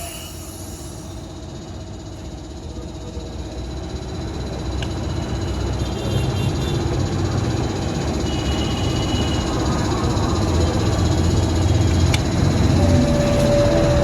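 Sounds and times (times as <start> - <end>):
vehicle engine running: 6.6 - 14.0.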